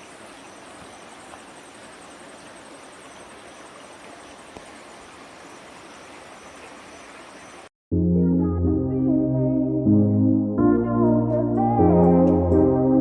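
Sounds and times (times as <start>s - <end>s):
insect chirring: 0.0s - 7.7s
steady outdoor hiss: 0.0s - 7.7s
faint click: 4.5s - 4.7s.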